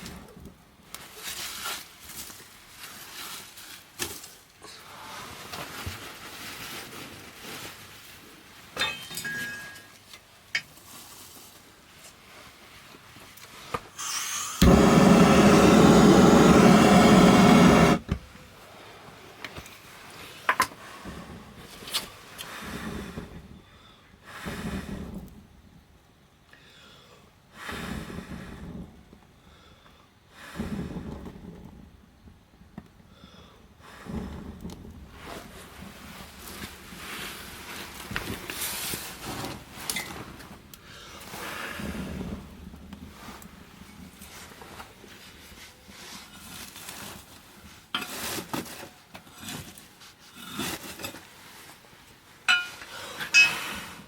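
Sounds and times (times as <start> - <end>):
rush of air: 14.0 - 18.0
firewood crackling and popping: 14.6 - 18.0.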